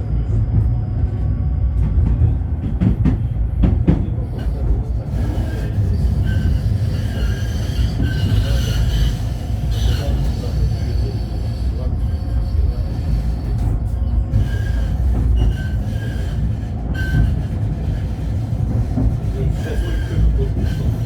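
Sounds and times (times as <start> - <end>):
tram rumbling: 0.0 - 21.0
wheel squeal: 5.2 - 10.5, 14.3 - 18.0.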